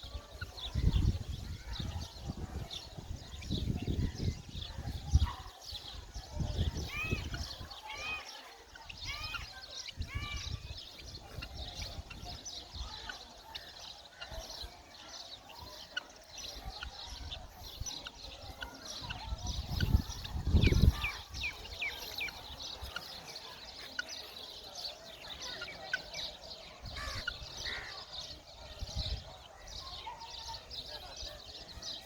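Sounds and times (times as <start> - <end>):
low rumble of wind on microphone: 0.0 - 7.7, 16.8 - 22.9
partridges chirping: 0.0 - 32.0.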